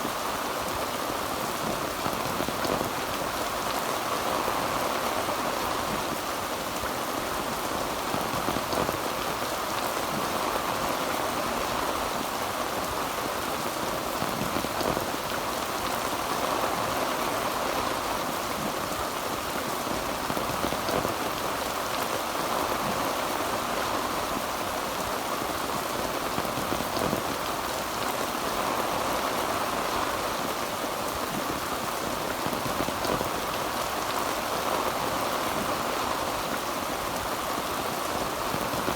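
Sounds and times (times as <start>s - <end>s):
heavy rain on a tin roof: 0.0s - 38.9s.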